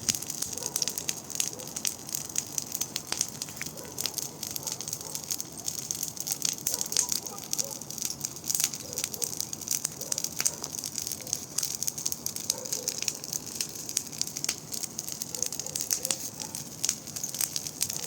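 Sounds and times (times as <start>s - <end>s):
wood bonfire crackling: 0.0s - 18.0s.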